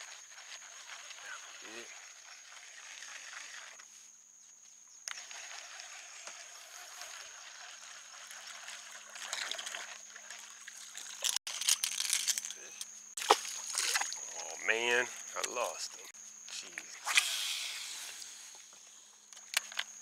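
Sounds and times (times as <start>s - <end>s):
water trickling: 0.0s - 3.8s, 5.1s - 12.5s, 13.2s - 16.1s
fish splashing at water surface: 13.2s - 14.4s.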